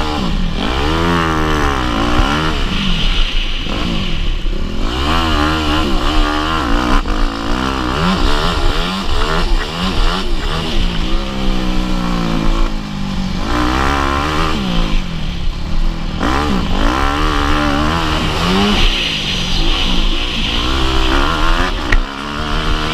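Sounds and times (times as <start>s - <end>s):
motocross bike engine revving: 0.0s - 22.9s.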